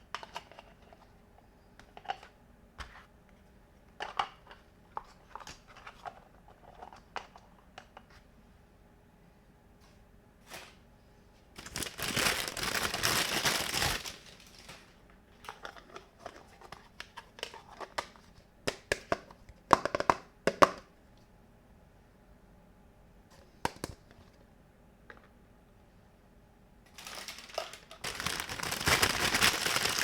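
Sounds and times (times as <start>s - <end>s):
packaging crinkling: 11.6s - 15.6s, 26.9s - 30.0s.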